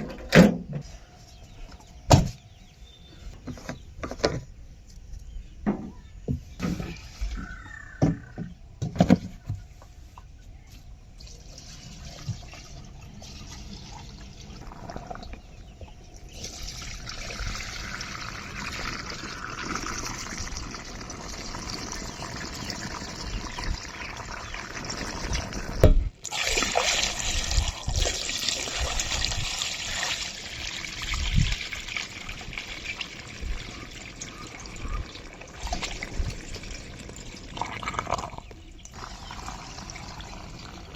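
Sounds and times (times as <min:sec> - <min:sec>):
liquid pouring into tank: 0:16.3 - 0:40.9.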